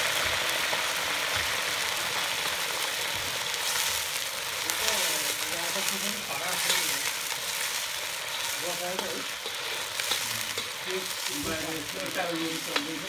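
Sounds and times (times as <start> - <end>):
food sizzling in a wok: 0.0 - 13.0
metal ladle stirring: 5.2 - 13.0.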